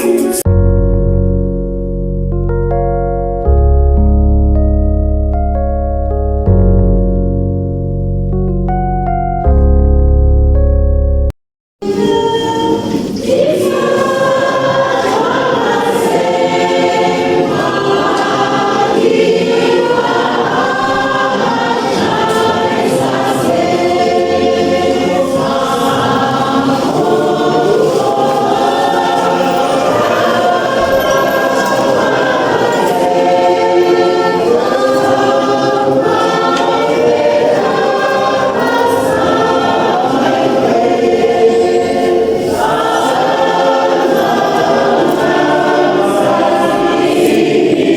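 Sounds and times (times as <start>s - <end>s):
choir singing gospel song: 0.0s - 0.5s, 11.8s - 47.9s.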